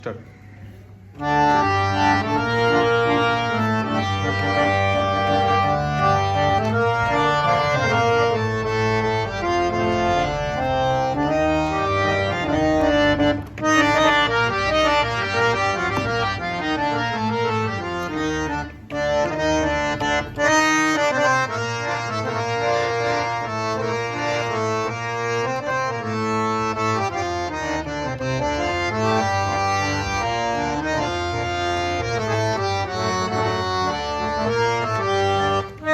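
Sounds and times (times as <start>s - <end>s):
reed harmonium melody: 0.0s - 35.9s.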